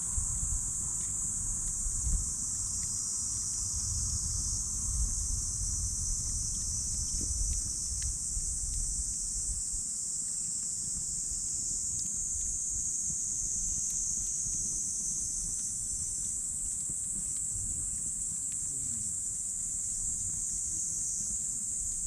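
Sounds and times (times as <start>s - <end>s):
insects chorus: 0.0s - 22.0s
faint wood crackles: 6.2s - 22.0s.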